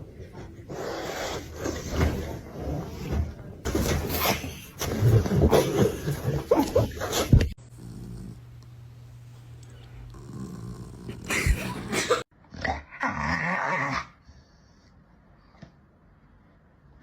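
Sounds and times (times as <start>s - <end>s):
dog growling: 5.4s - 8.5s, 10.1s - 14.2s.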